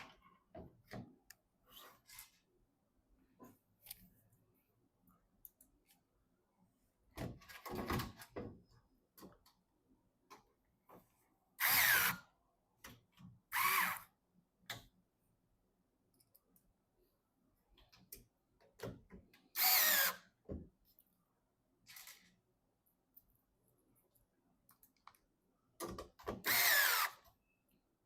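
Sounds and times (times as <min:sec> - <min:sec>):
electric screwdriver whirring: 0:19.6 - 0:20.2, 0:26.4 - 0:27.2.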